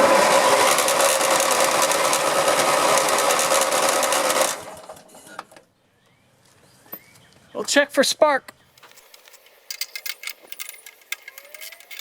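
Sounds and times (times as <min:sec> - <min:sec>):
electric starter cranking engine: 0:00.0 - 0:05.1, 0:08.8 - 0:12.0.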